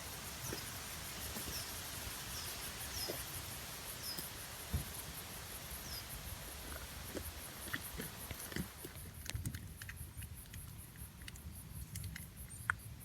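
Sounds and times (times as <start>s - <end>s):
night insects chirping: 0.0s - 9.2s.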